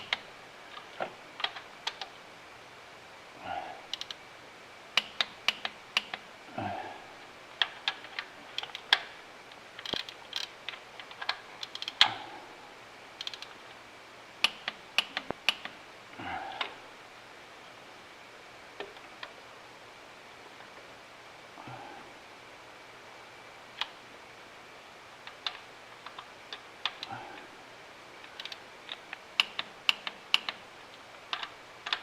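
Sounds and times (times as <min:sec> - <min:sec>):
torque wrench clicking: 0:03.9 - 0:04.2, 0:11.6 - 0:12.2, 0:13.2 - 0:13.5.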